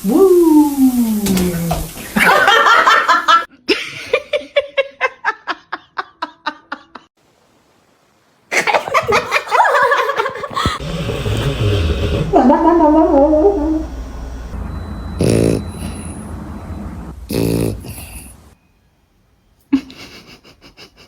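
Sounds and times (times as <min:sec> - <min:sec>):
person laughing: 0:02.2 - 0:07.1, 0:08.5 - 0:13.8, 0:19.7 - 0:21.0.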